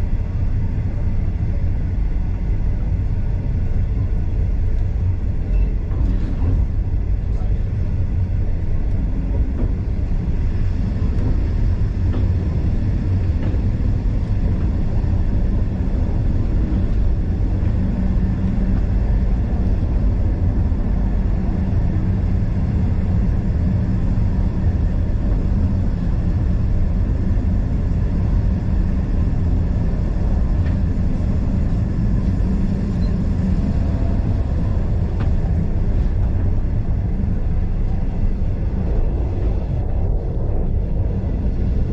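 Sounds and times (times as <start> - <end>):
train wheels rumbling on rail: 0.0 - 41.9.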